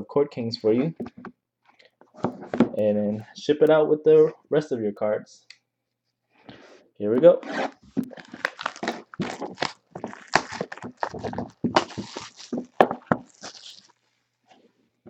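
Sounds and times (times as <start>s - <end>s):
plastic wrap and cardboard crinkling: 7.6s - 14.2s.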